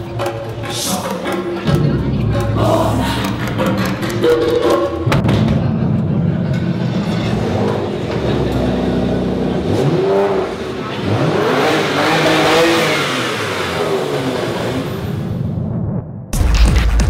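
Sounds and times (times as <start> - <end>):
car engine revving: 6.1 - 15.4.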